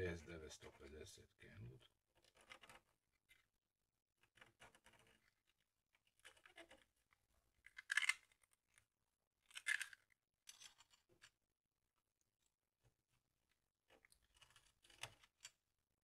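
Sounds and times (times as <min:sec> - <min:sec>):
scraping and scratching: 0:01.8 - 0:03.5, 0:04.2 - 0:11.4, 0:13.9 - 0:15.6.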